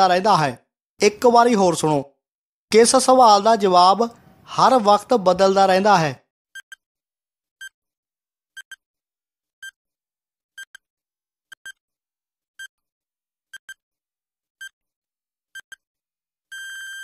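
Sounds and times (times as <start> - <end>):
high electronic ticks: 8.6 - 8.8.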